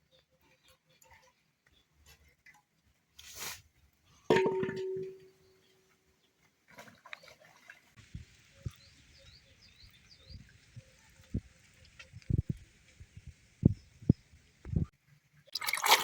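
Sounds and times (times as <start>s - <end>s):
metal pot lid ringing: 4.3s - 5.3s.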